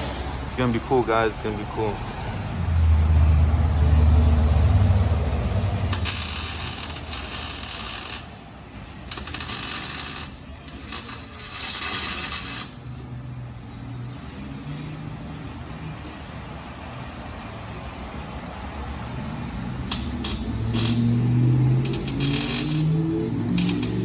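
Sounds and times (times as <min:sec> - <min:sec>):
tool hissing and scraping: 0:05.8 - 0:13.0, 0:19.9 - 0:24.0.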